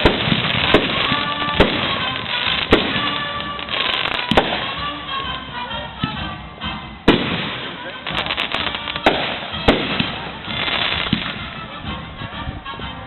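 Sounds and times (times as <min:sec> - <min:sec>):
firework bangs: 0:00.0 - 0:05.4, 0:07.0 - 0:11.7
firework crackling: 0:00.0 - 0:05.5, 0:07.0 - 0:11.7.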